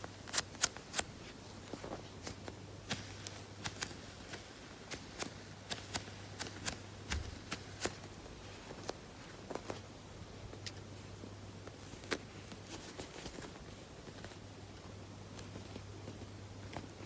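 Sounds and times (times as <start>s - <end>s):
foam toy clicking and crackling: 0.1s - 9.0s.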